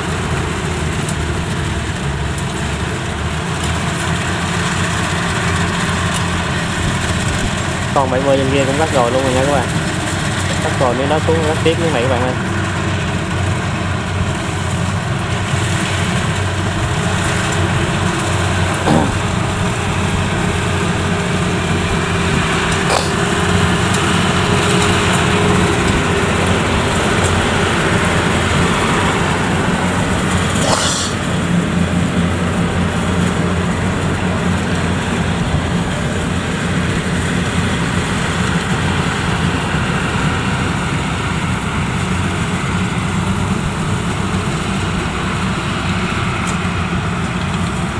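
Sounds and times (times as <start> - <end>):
diesel engine running: 0.0 - 47.9
brief sharp knocks: 18.9 - 19.3.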